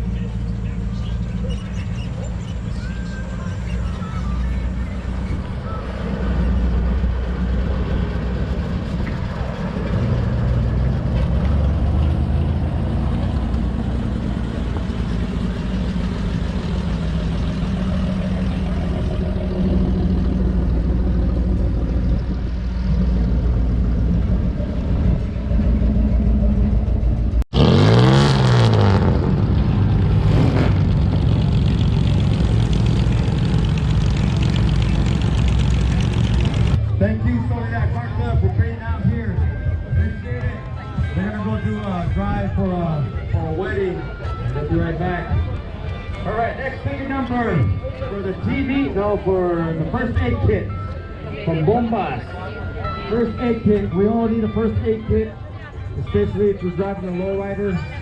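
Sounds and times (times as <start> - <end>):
engine sweeping in pitch: 0.0 - 37.0
car engines rumbling: 0.0 - 58.0.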